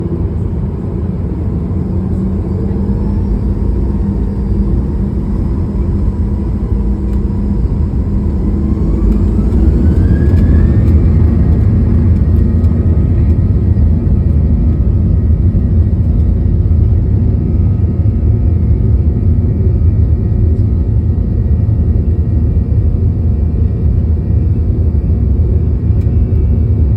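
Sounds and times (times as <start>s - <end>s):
jet engines spooling up: 0.0s - 16.3s
rising engine whine: 0.0s - 26.9s.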